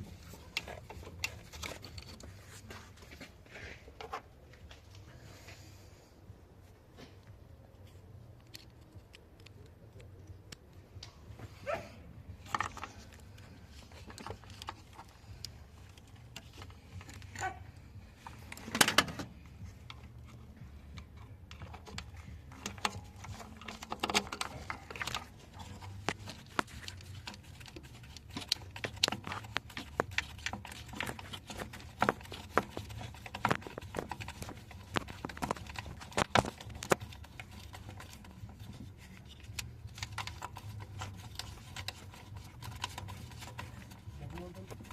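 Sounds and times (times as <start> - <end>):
low steady hum: 0.0 - 44.9
tools clicking and clinking: 18.2 - 44.9.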